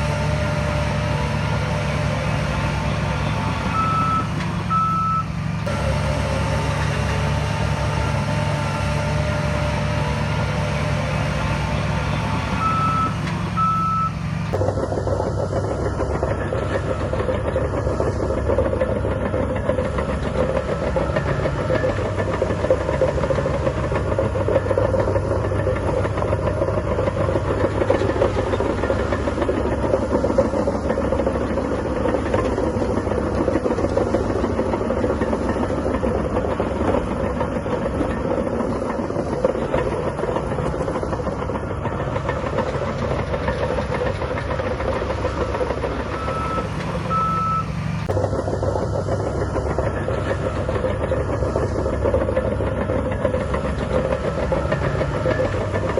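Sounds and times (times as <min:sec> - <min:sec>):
bulldozer diesel engine running: 0:00.0 - 0:55.9
steel tracks clanking: 0:14.5 - 0:55.9.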